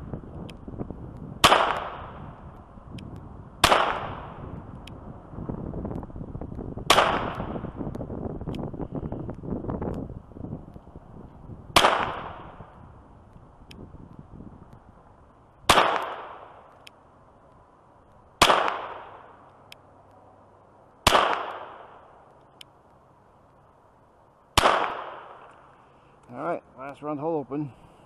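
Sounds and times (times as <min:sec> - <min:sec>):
pistol shots with echo: 0:01.4 - 0:02.2, 0:03.6 - 0:04.3, 0:06.9 - 0:07.5, 0:11.8 - 0:12.5, 0:15.7 - 0:16.5, 0:18.4 - 0:19.2, 0:21.0 - 0:22.0, 0:24.6 - 0:25.4.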